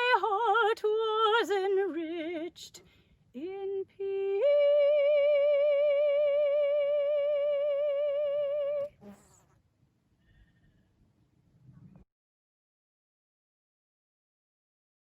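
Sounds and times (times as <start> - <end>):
woman singing a long note: 3.4 - 9.2.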